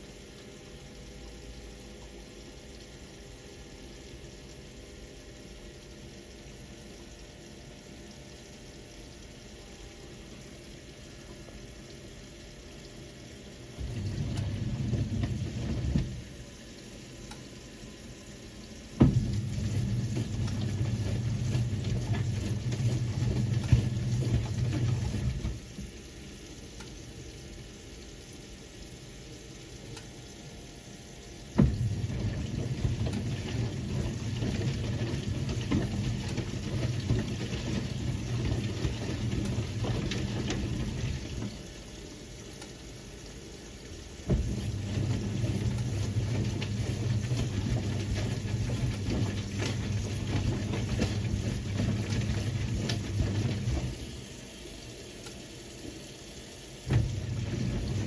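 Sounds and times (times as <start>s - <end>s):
washing machine drum humming: 0.0s - 58.0s
water splashing in drum: 13.7s - 17.5s, 18.7s - 26.0s, 31.4s - 42.8s, 43.9s - 54.4s, 56.7s - 58.0s
washing machine knock: 13.8s - 16.4s, 19.0s - 25.7s, 31.6s - 41.6s, 44.2s - 54.0s, 56.9s - 58.0s.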